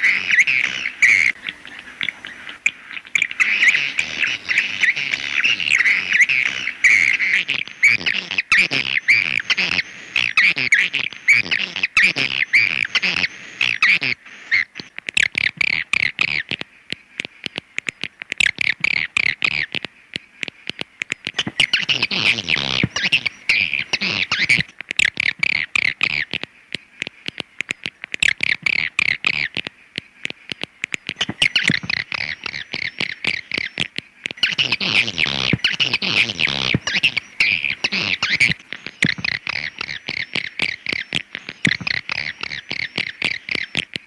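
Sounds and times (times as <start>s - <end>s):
birds chattering twitters: 0.0s - 44.0s
rapid clicking: 24.3s - 44.0s.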